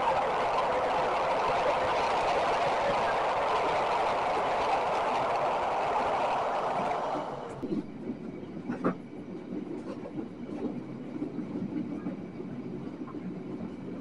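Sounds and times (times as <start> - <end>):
wheels clacking over points: 0.0 - 7.6
train rushing through tunnel: 0.0 - 14.0
train wheels rumbling on rails: 0.0 - 14.0.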